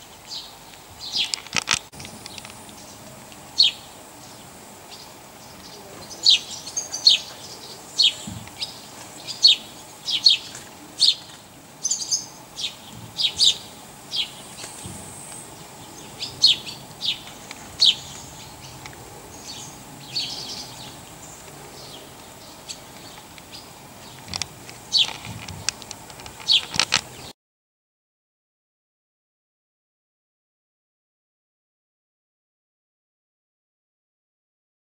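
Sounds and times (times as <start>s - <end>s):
small birds chirping: 0.0s - 27.3s.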